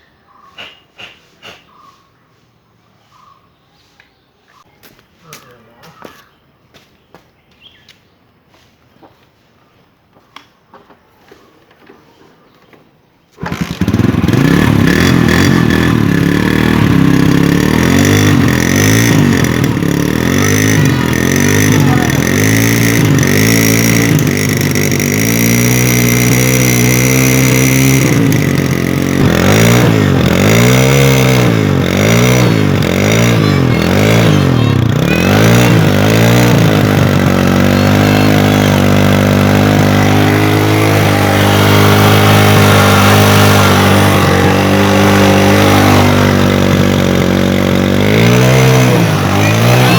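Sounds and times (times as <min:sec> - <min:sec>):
motorcycle engine revving: 0:13.3 - 0:49.9.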